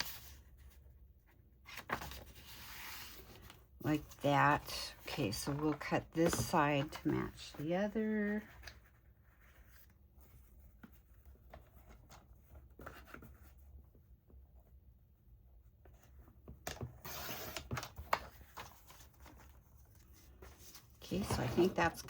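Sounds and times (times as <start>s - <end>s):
paper rustling: 1.6s - 13.5s, 17.0s - 22.0s.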